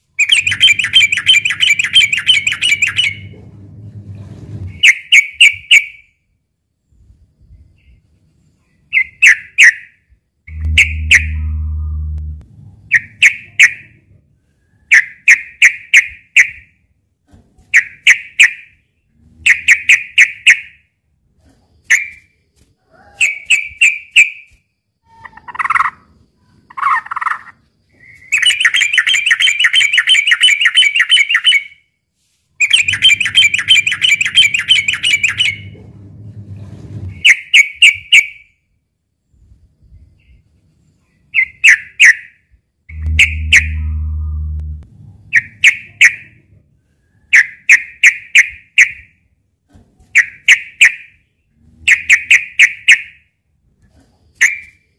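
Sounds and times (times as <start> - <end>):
low hum: 3.1 - 4.8, 10.5 - 13.2, 32.9 - 37.2, 42.9 - 45.6
bird bubbling song: 10.5 - 12.2, 42.9 - 46.2.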